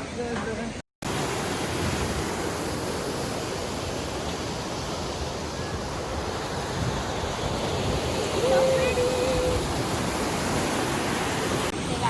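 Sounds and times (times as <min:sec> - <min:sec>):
waterfall rushing over rocks: 0:01.1 - 0:12.0.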